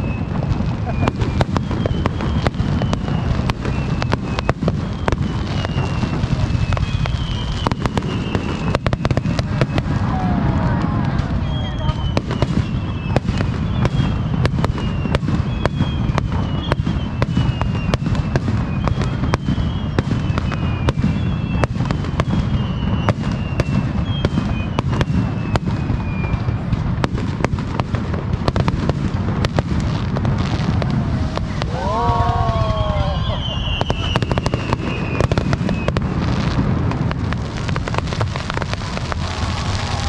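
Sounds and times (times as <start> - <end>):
fireworks bangs and crackles: 0.0 - 40.0
fireworks falling whistles: 0.0 - 40.0
low rumble: 30.2 - 33.4.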